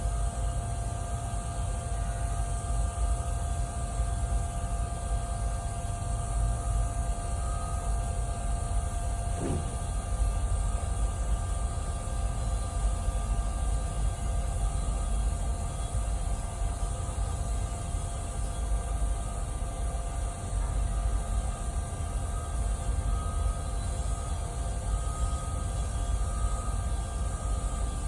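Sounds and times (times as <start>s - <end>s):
thin steady tone: 0.3s - 28.0s
low hum: 9.2s - 10.0s
welding arc buzz and hiss: 9.3s - 10.2s.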